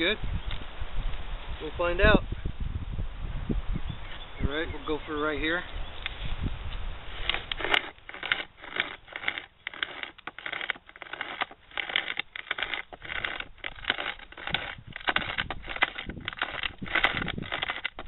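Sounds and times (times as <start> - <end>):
pocket chain saw rasping wood: 7.1 - 18.0.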